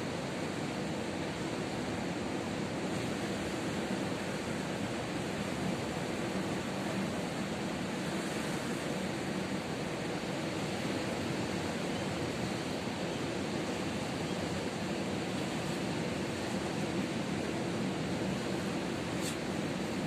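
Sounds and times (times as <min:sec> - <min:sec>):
waves breaking: 0:00.1 - 0:20.0.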